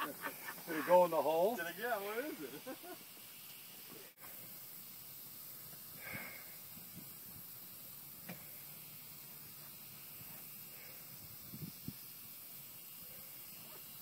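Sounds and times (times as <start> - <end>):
faint outdoor hiss: 0.0 - 14.0.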